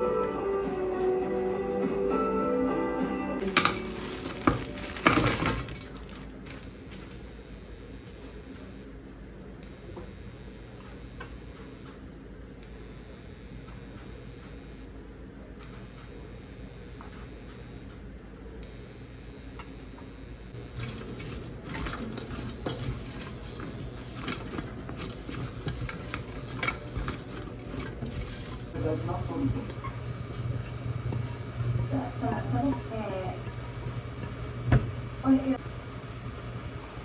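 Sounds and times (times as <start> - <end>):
kitchen utensils clattering: 3.4 - 6.5, 20.8 - 33.6.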